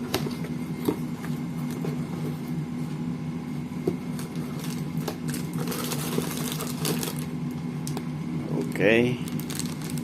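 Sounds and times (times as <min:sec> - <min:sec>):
steady low hum: 0:00.0 - 0:10.0
plastic and cardboard rustling: 0:03.8 - 0:07.3, 0:09.2 - 0:10.0.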